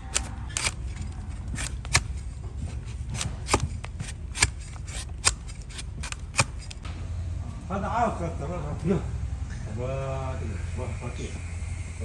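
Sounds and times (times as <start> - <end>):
blade scraping hoof: 0.0 - 6.8.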